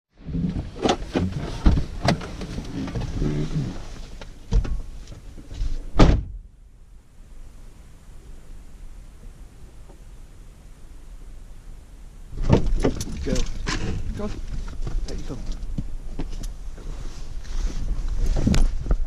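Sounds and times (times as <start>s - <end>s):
knocks and thumps: 0.4s - 3.4s, 4.2s - 4.9s.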